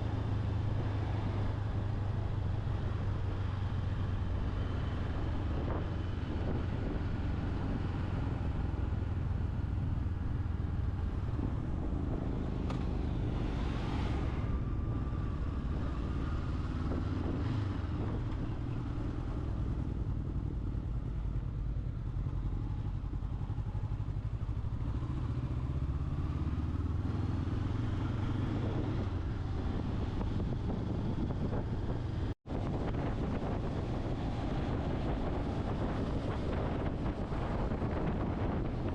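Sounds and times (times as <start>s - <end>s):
rushing wind noise: 0.0s - 21.6s, 24.2s - 38.9s
motorcycle engine running: 0.1s - 38.9s.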